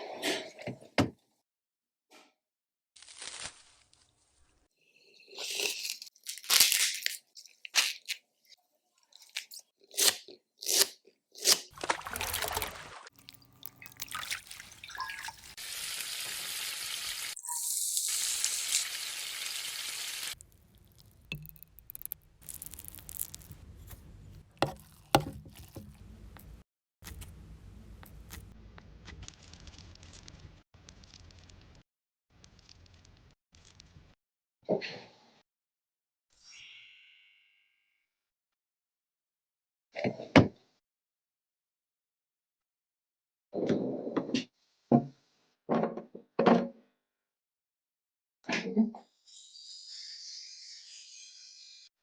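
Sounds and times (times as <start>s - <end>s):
food crunching and snapping: 5.4s - 8.2s, 13.2s - 14.6s, 20.4s - 28.5s.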